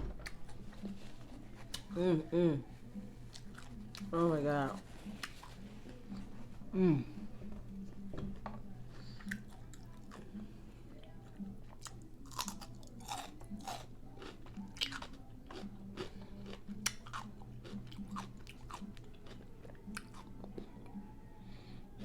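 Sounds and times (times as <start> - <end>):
crunchy taco chewing: 2.8 - 6.6, 9.1 - 10.4, 11.2 - 21.4.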